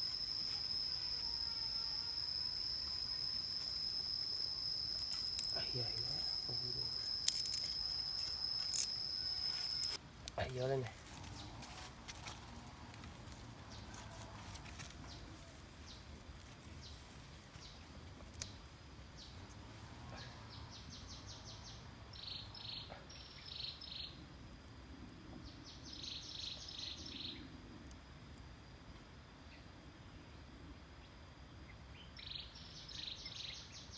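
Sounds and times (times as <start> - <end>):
rapid high pulsed chirping: 0.0 - 10.0.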